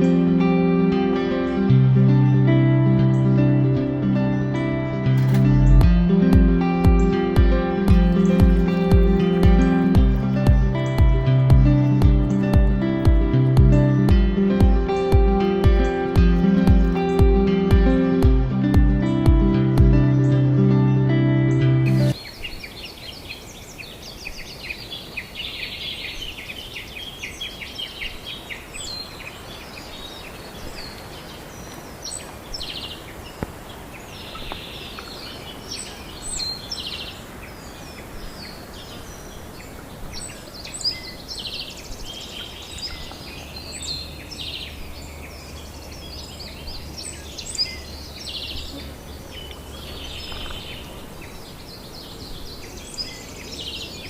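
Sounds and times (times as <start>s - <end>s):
outdoor background noise: 5.2s - 20.0s, 21.8s - 54.0s
birds chirping and calling: 7.9s - 18.1s, 21.9s - 54.0s.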